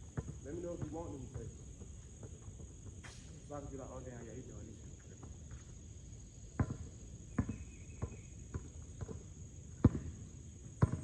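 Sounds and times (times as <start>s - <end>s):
basketball bouncing on court: 0.0s - 3.0s, 6.6s - 10.2s, 10.8s - 11.0s.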